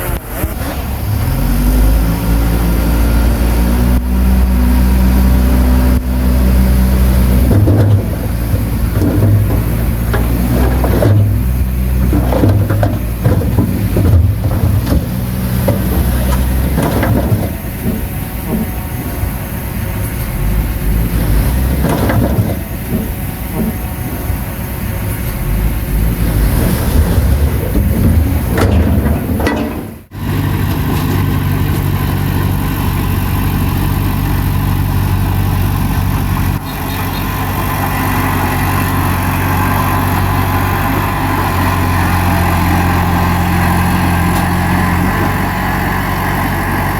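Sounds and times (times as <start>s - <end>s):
bulldozer diesel engine: 0.0s - 46.9s
steady engine hum: 0.0s - 46.9s
metal knocks and clatter: 6.0s - 19.5s, 20.8s - 24.2s, 26.6s - 31.4s.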